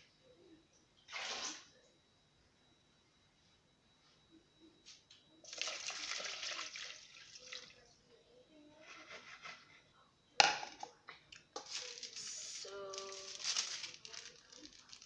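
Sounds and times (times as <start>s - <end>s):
water pouring into a bowl: 5.5s - 7.8s.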